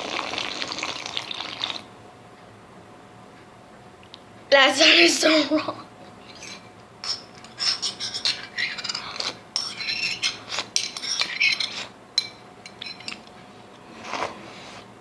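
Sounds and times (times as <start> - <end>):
cutlery clinking and scraping: 6.3 - 13.3.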